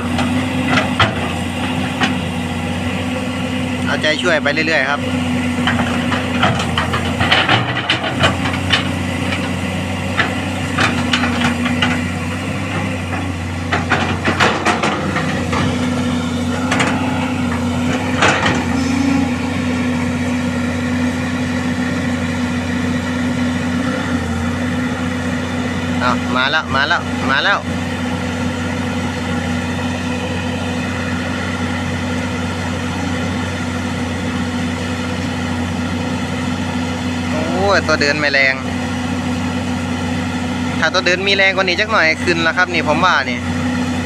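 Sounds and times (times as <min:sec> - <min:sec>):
clanks of tracks and bucket: 0:00.0 - 0:03.2, 0:03.8 - 0:22.0
diesel engine running under load: 0:00.0 - 0:44.0.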